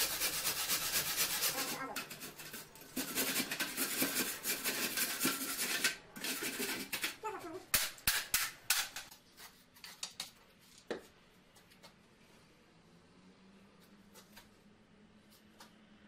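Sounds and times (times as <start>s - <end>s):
quick scraping strokes: 0.0s - 7.2s.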